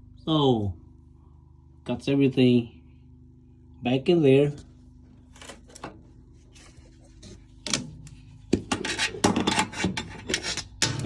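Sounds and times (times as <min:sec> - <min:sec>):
metal parts knocking and rattling: 0:08.6 - 0:11.0.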